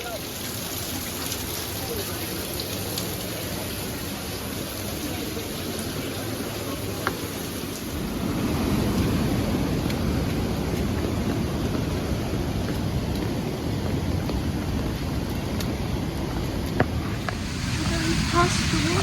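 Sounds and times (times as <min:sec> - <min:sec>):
rain rushing: 0:00.0 - 0:19.0
waterfall: 0:00.0 - 0:19.0
water drips: 0:14.2 - 0:19.0.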